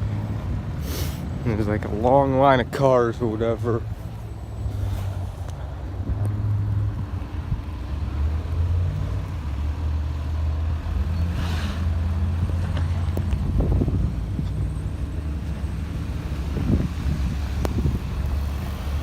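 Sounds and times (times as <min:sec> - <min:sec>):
motor vehicle engine droning: 0:00.0 - 0:19.0
brief hiss: 0:00.8 - 0:01.2.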